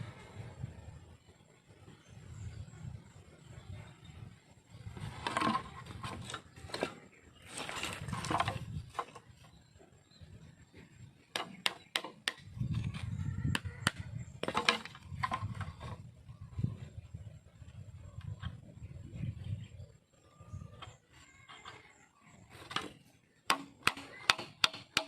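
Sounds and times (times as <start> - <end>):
bamboo scraping and rustling: 4.8 - 9.7, 14.4 - 16.8, 20.9 - 23.2
sharp wooden knocks: 11.3 - 12.5, 13.5 - 16.0, 23.5 - 25.0.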